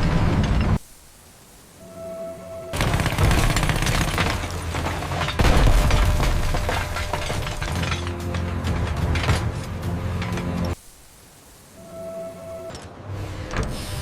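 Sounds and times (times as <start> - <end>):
music: 1.8 - 2.9, 6.4 - 10.8, 11.8 - 14.0
faint steady tone: 10.8 - 12.9.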